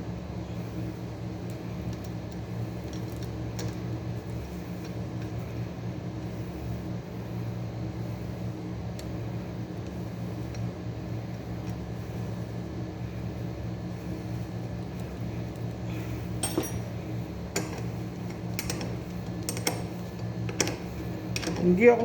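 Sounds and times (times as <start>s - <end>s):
low mechanical hum: 0.0s - 22.0s
metallic hand tool clinks: 16.4s - 16.9s.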